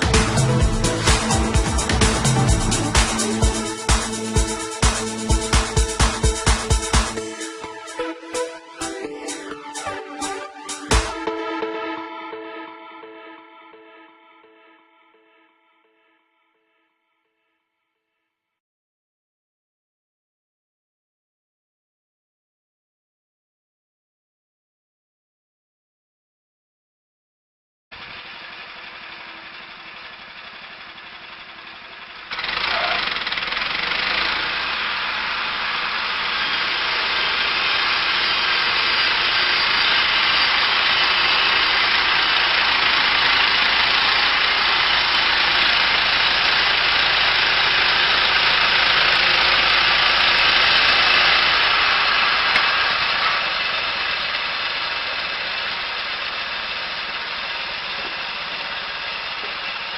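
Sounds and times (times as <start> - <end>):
heavy machine engine running: 0.0 - 11.8, 28.0 - 59.9.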